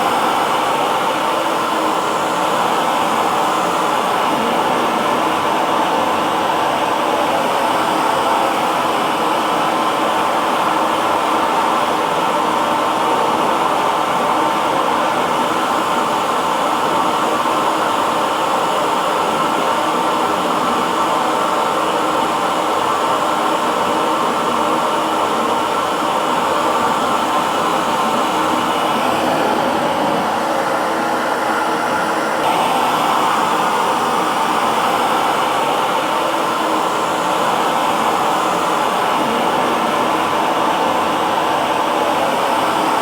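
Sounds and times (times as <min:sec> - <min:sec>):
hair dryer running: 0:00.0 - 0:43.0.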